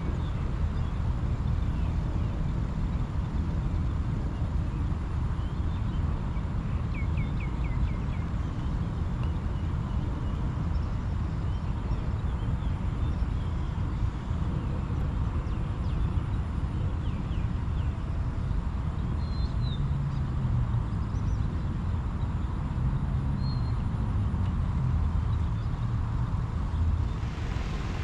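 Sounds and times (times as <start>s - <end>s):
low rumble: 26.9s - 28.0s.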